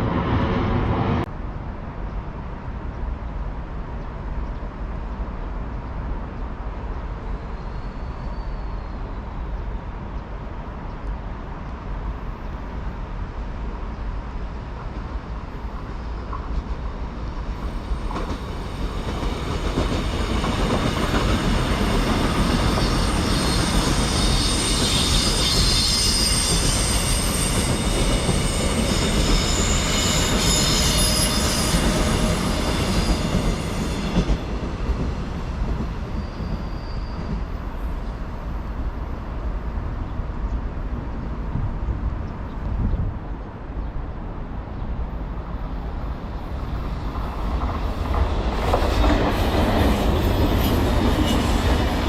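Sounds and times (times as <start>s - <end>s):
train running on rails: 0.0s - 52.0s
train wheels squealing: 7.2s - 9.8s, 17.6s - 38.6s, 46.4s - 52.0s.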